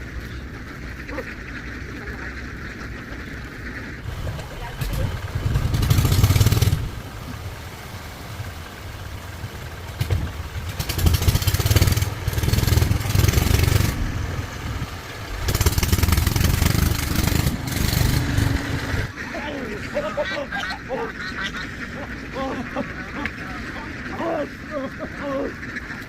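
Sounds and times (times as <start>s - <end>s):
vehicle engine revving: 4.0s - 24.4s.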